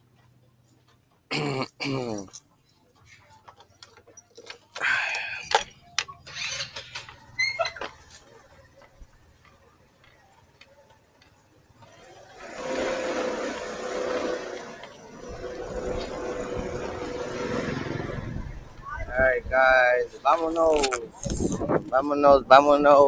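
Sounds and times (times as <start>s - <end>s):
motor vehicle humming with whine: 4.8s - 19.5s.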